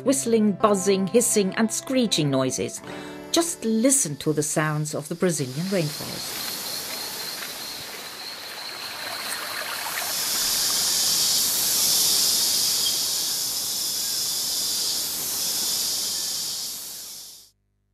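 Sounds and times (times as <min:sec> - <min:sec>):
high-pitched insect chorus: 0:04.0 - 0:17.5.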